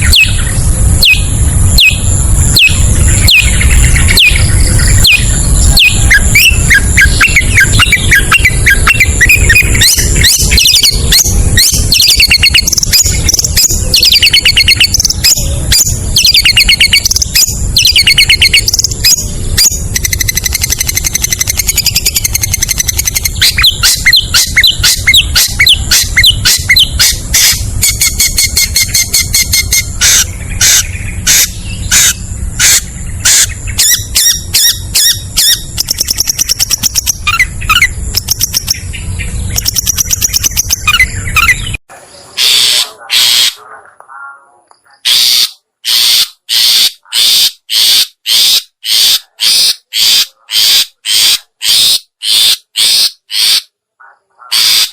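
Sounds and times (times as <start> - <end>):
low hum: 0.0 - 42.4
bird chattering calls: 0.0 - 54.9.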